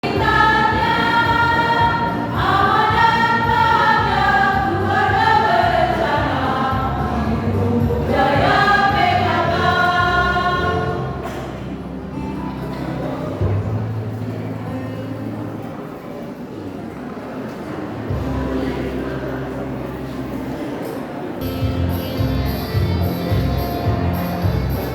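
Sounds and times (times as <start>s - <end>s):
choir singing: 0.0s - 11.6s.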